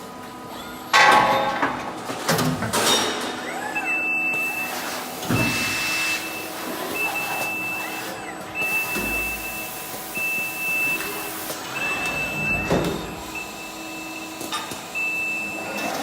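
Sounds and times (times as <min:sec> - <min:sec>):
motor whines: 0:03.4 - 0:16.0
high steady beep: 0:05.8 - 0:14.3.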